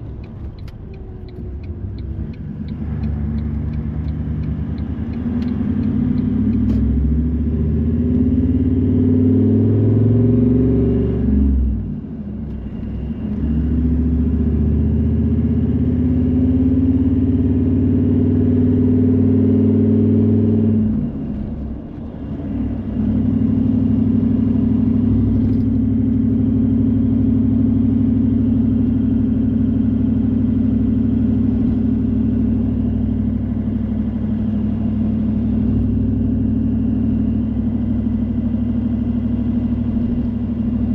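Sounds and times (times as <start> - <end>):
car engine running: 0.0 - 10.1, 20.2 - 40.9
road noise: 0.0 - 40.9.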